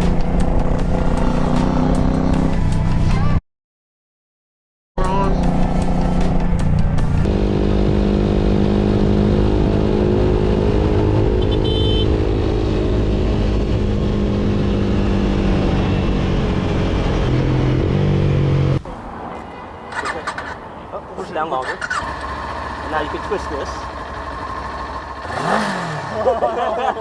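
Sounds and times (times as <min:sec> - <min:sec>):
motorcycle engine running: 0:21.8 - 0:27.0.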